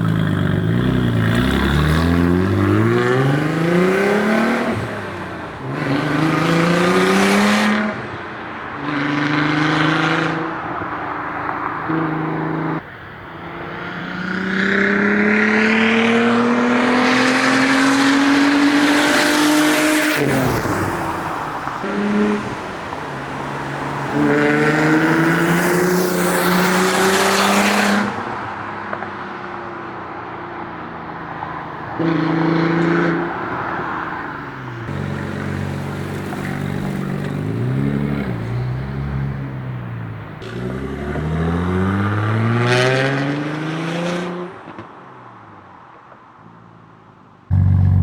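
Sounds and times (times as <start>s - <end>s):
car exhaust accelerating through gears: 0.0s - 7.8s, 47.5s - 48.0s.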